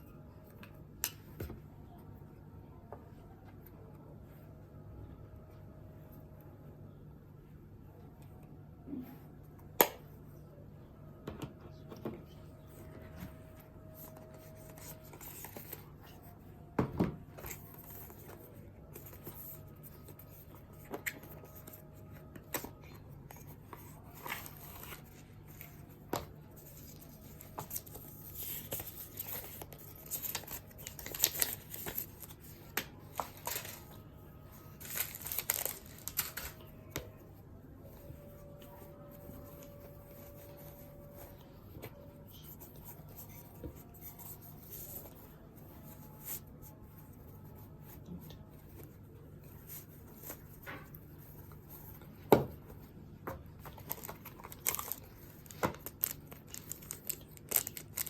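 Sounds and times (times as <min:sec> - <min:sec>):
packaging rustling and tearing: 0:34.8 - 0:36.6, 0:53.7 - 0:58.0.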